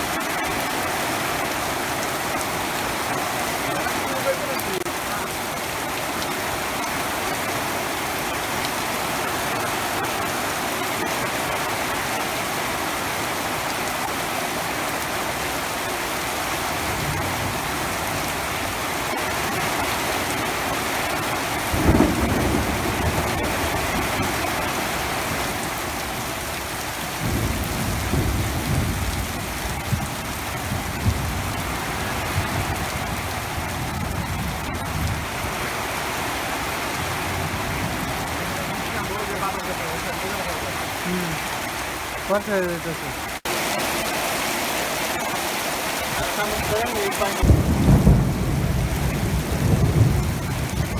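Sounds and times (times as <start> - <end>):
heavy rain: 0.0 - 50.9
thunder rumbling: 16.7 - 20.4, 21.1 - 41.0, 46.0 - 50.9.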